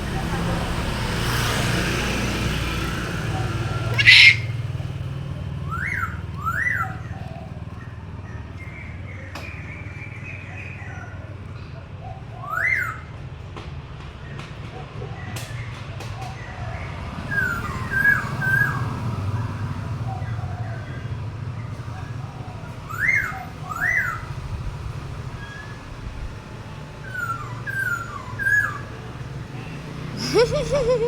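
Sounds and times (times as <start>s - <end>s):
bird singing whistled phrases: 4.0s - 4.5s.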